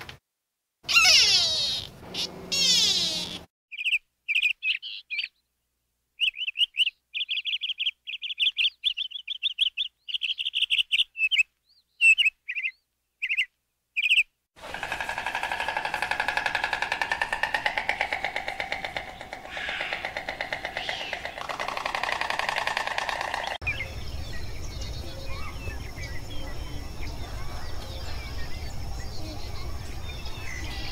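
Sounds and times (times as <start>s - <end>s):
bird chirping and trilling: 0.9s - 5.4s, 6.2s - 14.3s, 15.4s - 30.9s
rapidly pulsing buzz: 14.6s - 23.6s.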